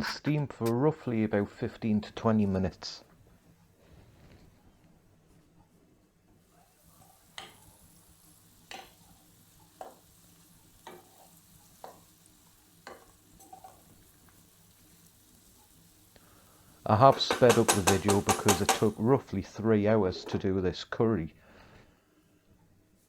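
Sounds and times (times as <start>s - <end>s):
onions frying in oil: 6.4s - 19.4s.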